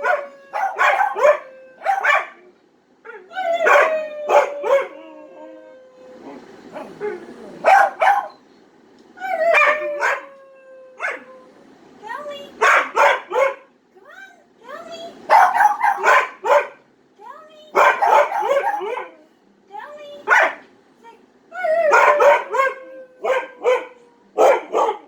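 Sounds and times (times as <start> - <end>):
dog howling and yipping: 0.0 - 2.4, 3.1 - 8.3, 9.2 - 11.4, 15.3 - 16.7, 17.8 - 19.2, 21.6 - 25.0.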